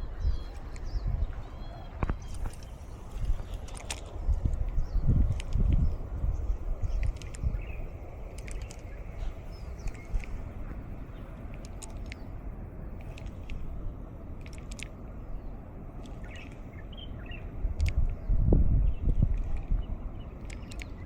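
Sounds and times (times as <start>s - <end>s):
wind buffeting microphone: 0.0s - 21.0s
bird chirps: 0.2s - 10.4s, 16.2s - 17.5s.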